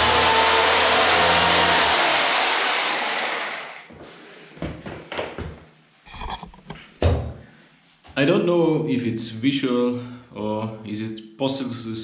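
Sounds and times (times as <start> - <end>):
power drill boring into concrete: 0.0 - 2.2.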